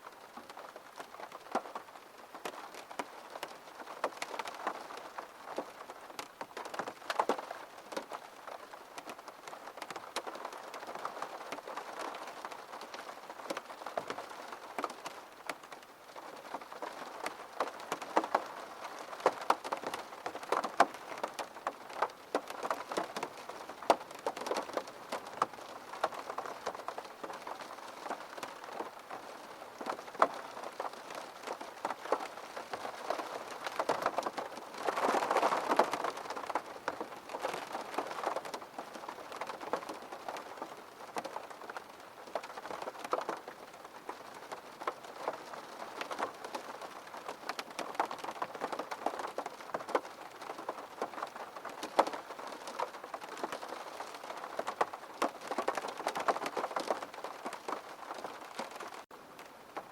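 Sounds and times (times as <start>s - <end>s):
rain hitting window pane: 0.1s - 59.9s.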